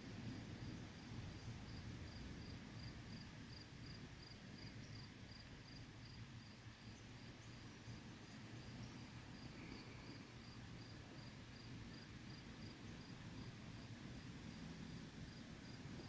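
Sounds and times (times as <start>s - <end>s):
faint cricket chirping: 0.1s - 16.0s.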